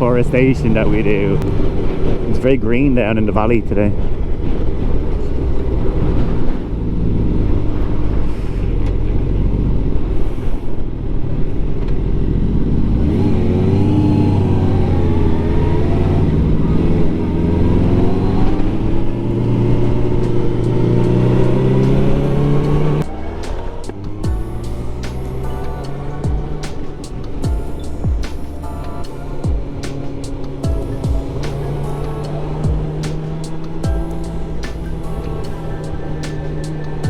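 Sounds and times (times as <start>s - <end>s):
riding wind rushing: 0.0s - 11.8s
motorcycle engine accelerating: 0.0s - 37.0s.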